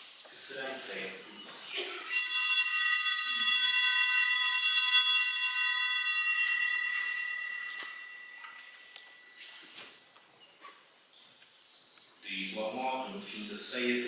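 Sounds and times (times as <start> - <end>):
altar bells ringing: 2.0 - 9.6.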